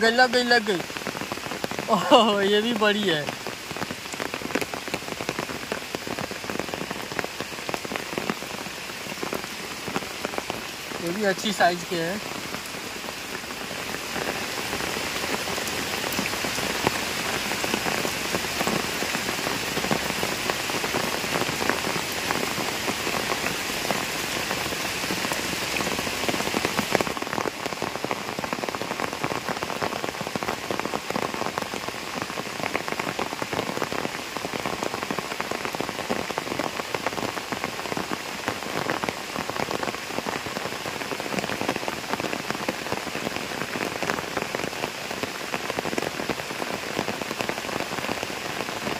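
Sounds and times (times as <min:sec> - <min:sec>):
rain falling on a pond: 0:00.0 - 0:48.9.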